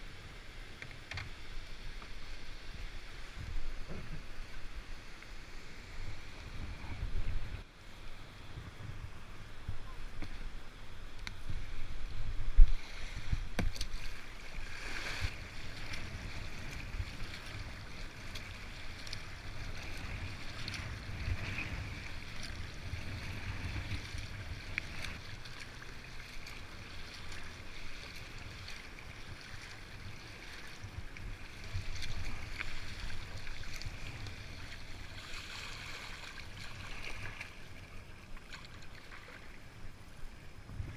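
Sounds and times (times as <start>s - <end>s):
wind rumbling on microphone: 0.0s - 40.9s
paddle splashing water: 11.2s - 40.9s.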